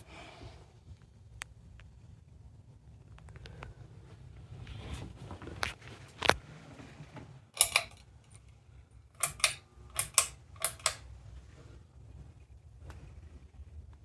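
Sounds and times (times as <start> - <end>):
sharp clicks: 9.2 - 11.0.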